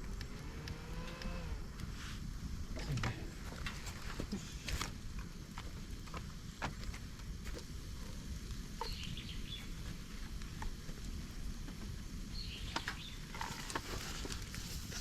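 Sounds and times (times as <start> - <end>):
fire crackling and popping: 0.0 - 15.0
low rush of flame: 0.0 - 15.0.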